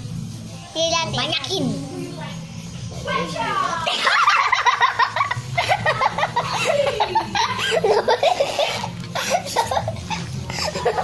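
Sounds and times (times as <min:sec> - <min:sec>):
children laughing and giggling: 0:03.8 - 0:11.0.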